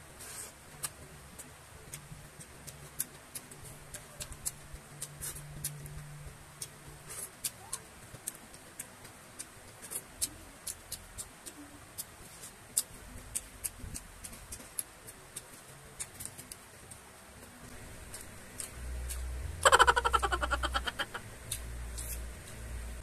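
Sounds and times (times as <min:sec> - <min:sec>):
person chewing food: 0:00.2 - 0:22.9.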